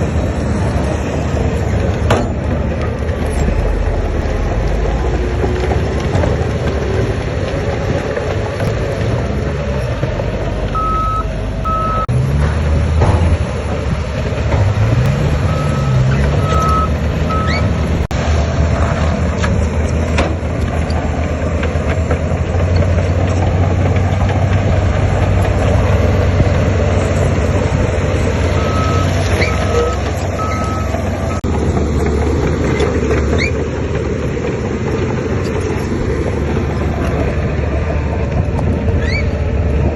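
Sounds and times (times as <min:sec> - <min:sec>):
heavy machinery diesel engines: 0:00.0 - 0:39.9
reversing alarm beeping: 0:10.7 - 0:12.1, 0:15.4 - 0:17.7, 0:28.6 - 0:31.5.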